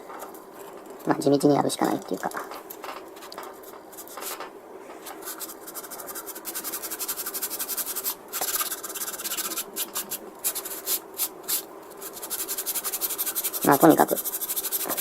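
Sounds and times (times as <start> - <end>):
sandpaper scraping plastic: 5.2 - 15.0.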